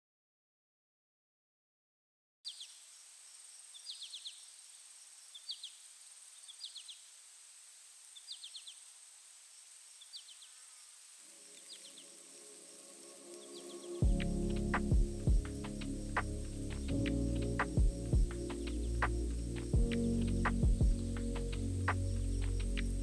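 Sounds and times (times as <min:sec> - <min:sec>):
soft music: 0:11.3 - 0:23.0.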